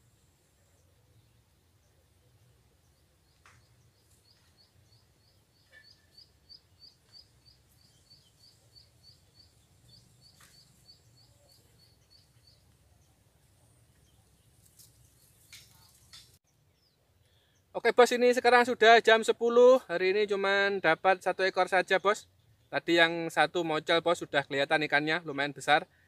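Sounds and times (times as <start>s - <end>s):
faint bird chirps: 0.0s - 17.7s.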